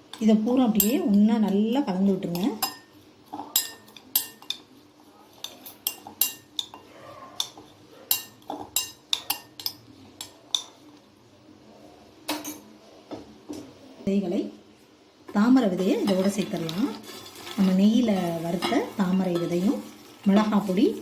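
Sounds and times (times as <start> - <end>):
spoon clinking against bowl: 0.1 - 1.2, 2.3 - 4.6, 5.4 - 10.8, 17.6 - 20.7.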